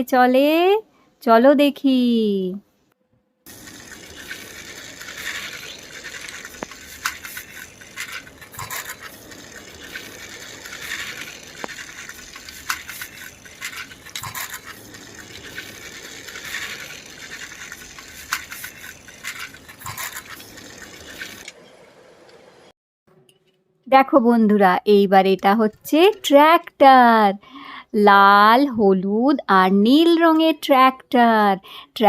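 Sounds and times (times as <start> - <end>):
clicks and rattles: 3.5 - 21.6
toy car wheels rolling: 3.5 - 22.4.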